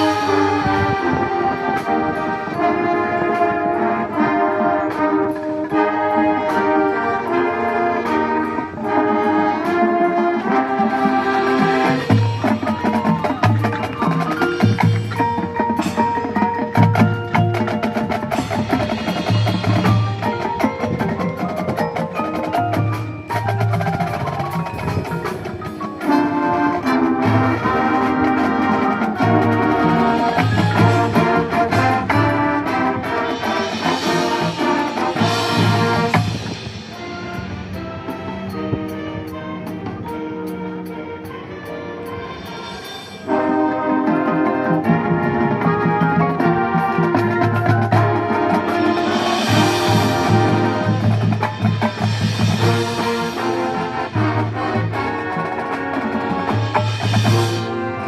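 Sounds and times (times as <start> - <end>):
marching band brass and percussion: 0.0 - 58.0
mallet percussion patterns: 10.5 - 32.5, 33.1 - 58.0.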